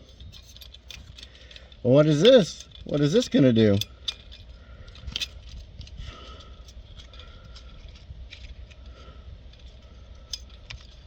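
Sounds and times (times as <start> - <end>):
low background rumble: 0.0 - 11.0
metal hardware clicking: 0.1 - 5.6.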